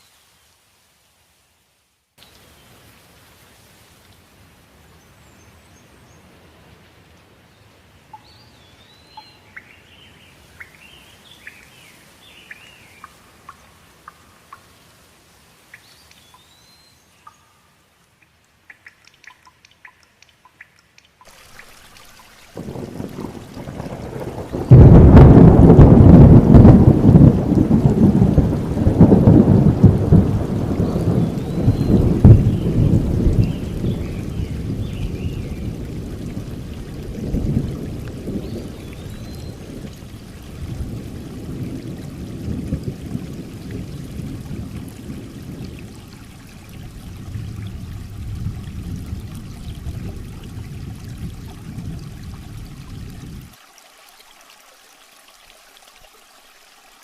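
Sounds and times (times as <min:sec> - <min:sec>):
steady rain: 0:00.0 - 0:57.0
birds whistled gliding calls: 0:08.1 - 0:13.2, 0:15.7 - 0:17.7
sharp water drips: 0:09.1 - 0:57.0
thunder rumbling: 0:22.6 - 0:53.5.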